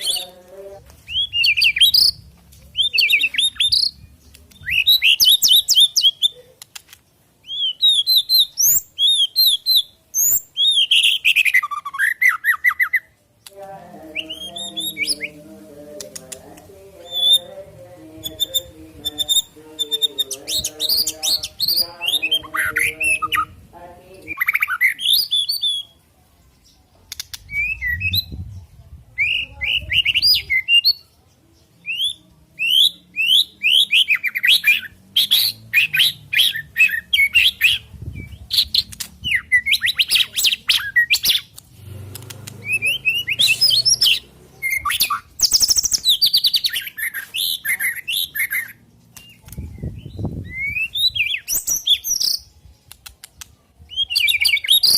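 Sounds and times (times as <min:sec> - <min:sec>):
bird singing whistles and trills: 0:01.0 - 0:02.2, 0:02.8 - 0:06.4, 0:07.4 - 0:13.1, 0:17.0 - 0:17.5, 0:24.3 - 0:26.0, 0:27.4 - 0:28.5, 0:29.2 - 0:31.1, 0:31.8 - 0:41.5, 0:42.6 - 0:52.6, 0:53.8 - 0:54.9.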